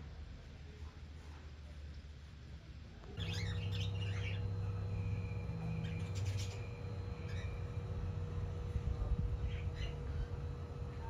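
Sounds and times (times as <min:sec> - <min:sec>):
birds twittering: 0:03.2 - 0:11.0.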